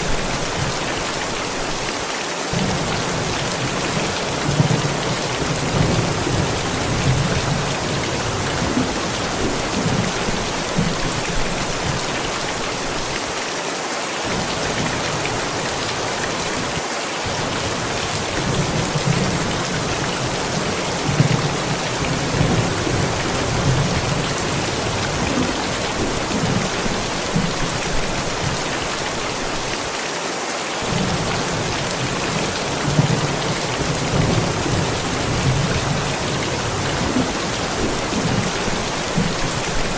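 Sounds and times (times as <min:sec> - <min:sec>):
steady rain falling: 0:00.0 - 0:39.9
thunder rumbling: 0:02.6 - 0:12.8, 0:14.3 - 0:29.6, 0:30.8 - 0:39.9.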